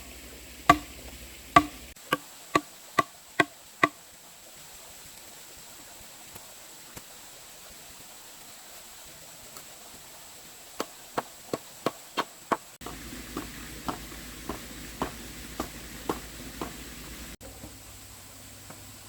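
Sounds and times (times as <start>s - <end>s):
tool chopping wood: 0.7s - 4.0s, 10.8s - 17.0s.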